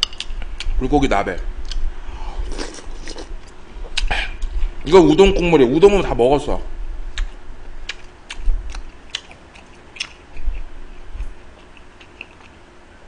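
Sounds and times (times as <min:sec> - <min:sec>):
person chewing: 0:02.4 - 0:04.5, 0:07.1 - 0:12.6.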